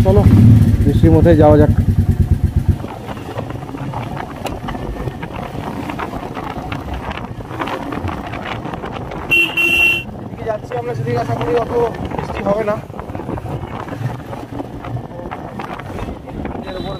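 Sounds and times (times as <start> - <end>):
motorcycle engine pulling away: 0.0 - 9.3
wind noise on microphone: 0.0 - 16.9.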